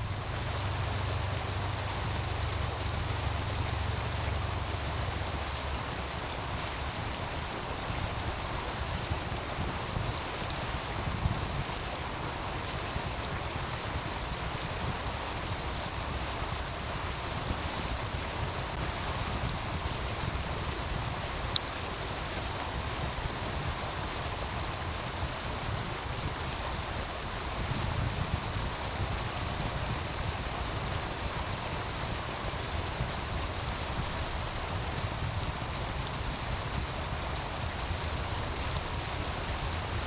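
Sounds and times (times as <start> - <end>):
low wind rumble: 0.0 - 40.0
stream rushing: 0.0 - 40.0
wood fire crackling and popping: 0.0 - 40.0.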